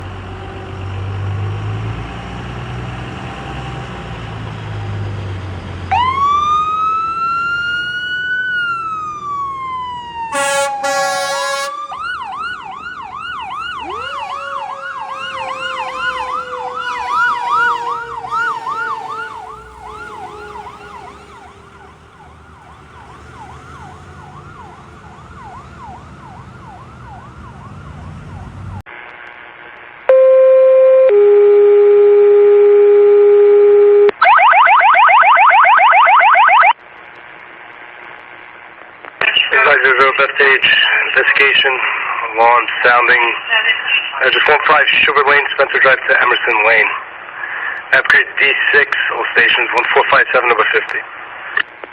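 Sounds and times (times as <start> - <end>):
diesel engine running: 0.0 - 28.8
siren wailing: 2.8 - 28.8, 30.1 - 36.8
siren yelp: 5.9 - 28.8, 30.1 - 36.8
air horn blast: 10.3 - 22.3.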